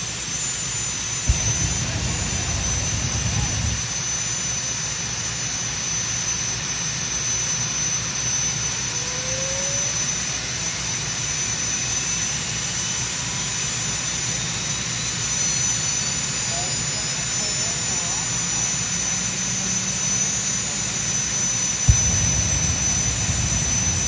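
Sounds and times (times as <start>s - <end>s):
high-pitched whine: 1.3s - 4.1s, 21.9s - 24.0s.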